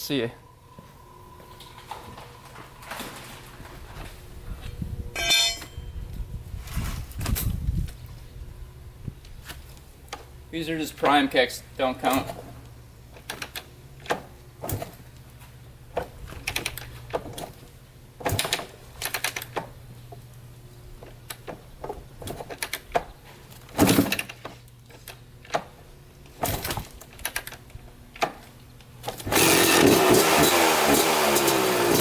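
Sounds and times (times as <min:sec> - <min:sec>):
dirt bike engine starting: 0:29.1 - 0:32.0.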